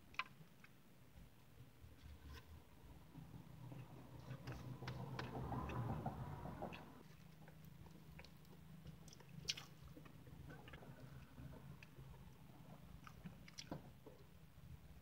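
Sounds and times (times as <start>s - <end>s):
person chewing: 7.0s - 14.3s
wet mouth clicks and smacks: 7.5s - 10.8s.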